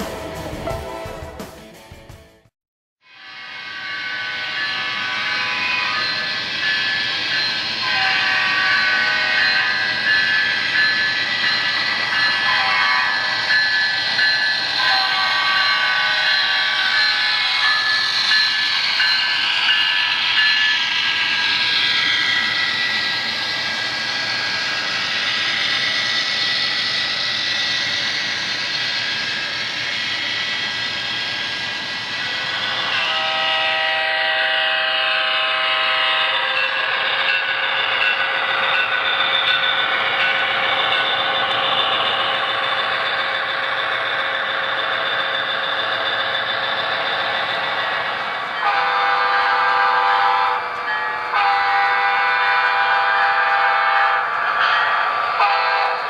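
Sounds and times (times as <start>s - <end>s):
train running past: 0.0s - 1.4s, 3.1s - 56.0s
chord train horn blasts: 7.4s - 10.9s, 12.4s - 13.3s, 14.8s - 17.2s, 32.6s - 36.7s, 48.6s - 56.0s.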